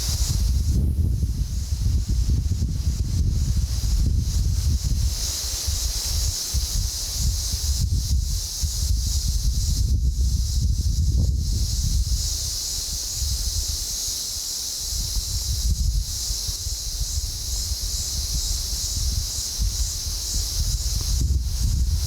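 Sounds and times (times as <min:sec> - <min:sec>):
gusty wind on microphone: 0:00.0 - 0:13.9, 0:14.8 - 0:22.0
steady high hiss: 0:00.0 - 0:22.0.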